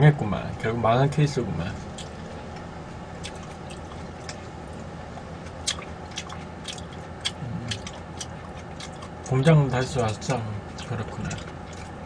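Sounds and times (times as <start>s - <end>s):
low background hum: 0.0s - 12.0s
chewing with wet smacks: 1.7s - 12.0s.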